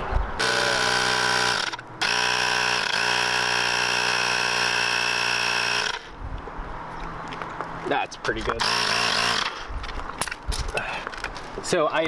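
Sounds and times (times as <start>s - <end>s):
small motor running at high speed: 0.4s - 6.1s, 8.6s - 9.6s.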